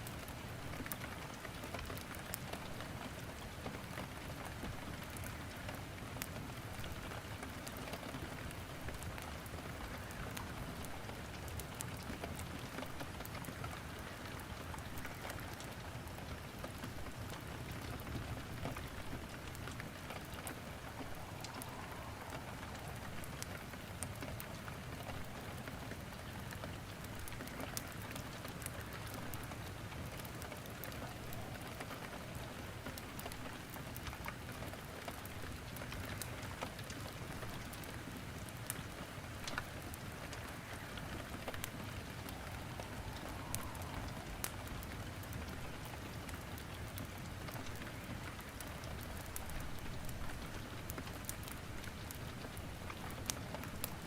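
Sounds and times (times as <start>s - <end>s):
wood fire crackling: 0.0s - 54.0s
rain hissing: 18.1s - 34.1s, 39.0s - 54.0s.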